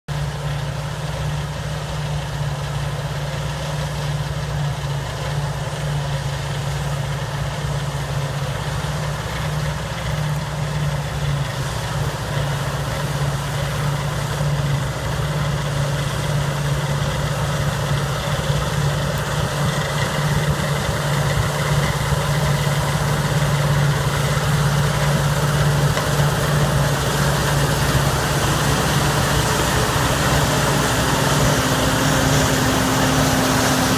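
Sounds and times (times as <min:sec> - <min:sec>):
combine harvester engine hum: 0:00.1 - 0:33.9.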